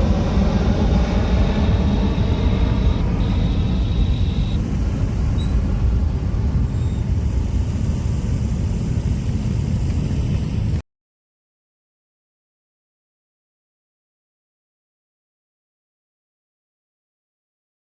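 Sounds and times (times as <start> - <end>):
thin high whine: 0.0 - 8.2
jet engines rumbling: 0.0 - 10.8.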